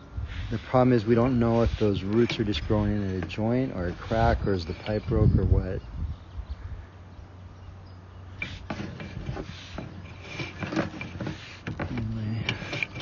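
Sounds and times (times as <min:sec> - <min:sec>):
equipment low hum: 0:00.0 - 0:13.0
cable clicks and scrapes in pipe: 0:00.3 - 0:05.3, 0:08.4 - 0:13.0.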